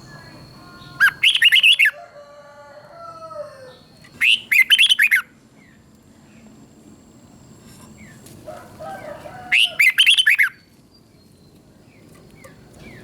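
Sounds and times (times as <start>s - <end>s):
bird singing warbled phrases: 0.0s - 2.0s, 3.6s - 5.9s, 9.0s - 13.0s.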